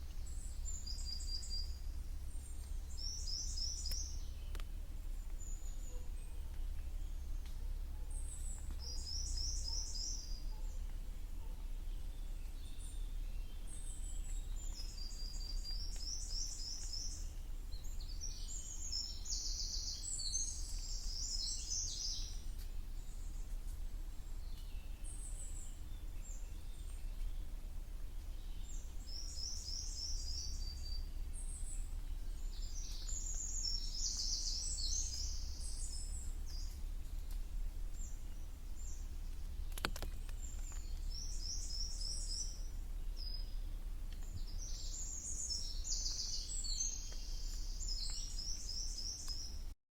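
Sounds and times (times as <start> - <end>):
songbirds singing: 0.0 - 49.8.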